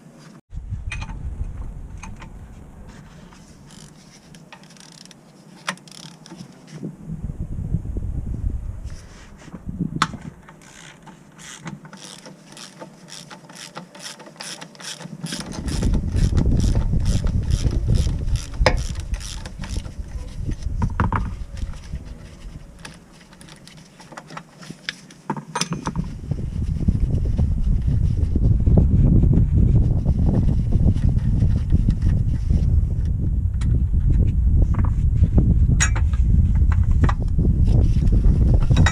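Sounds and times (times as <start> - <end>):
low rumble: 0.5 - 3.7, 6.9 - 10.4, 15.5 - 22.8, 26.0 - 38.9
ratchet wrench clicking: 3.7 - 4.0, 4.6 - 6.4, 10.6 - 19.9.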